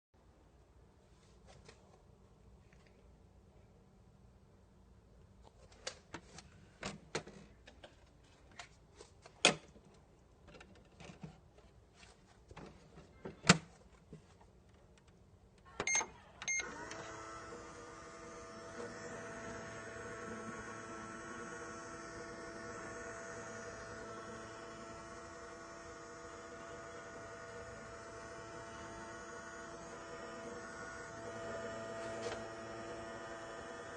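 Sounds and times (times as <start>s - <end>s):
toy microwave electronic hum: 15.7s - 33.9s.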